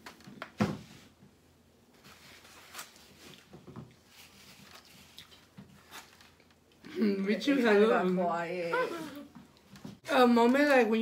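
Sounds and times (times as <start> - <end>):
chewing: 4.7 - 5.6.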